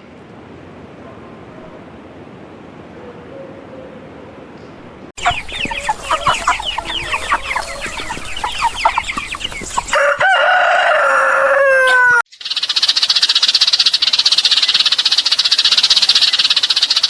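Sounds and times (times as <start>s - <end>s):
chickens clucking: 5.2s - 12.2s
rooster crowing: 5.8s - 8.1s, 9.9s - 12.3s.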